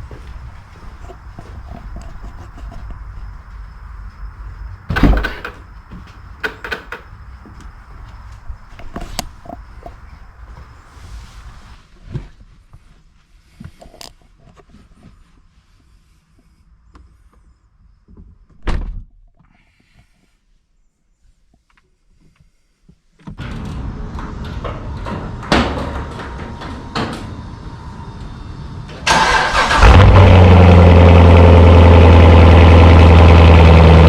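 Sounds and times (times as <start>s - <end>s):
loud thump: 4.9s - 5.6s
handling knocks and clicks: 4.9s - 7.7s.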